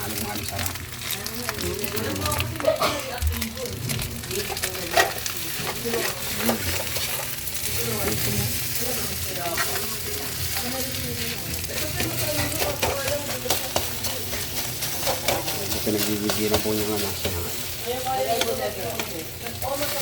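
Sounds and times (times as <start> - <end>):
rice sizzling in a hot pan: 0.0 - 20.0
spatula scraping a pan: 4.9 - 20.0.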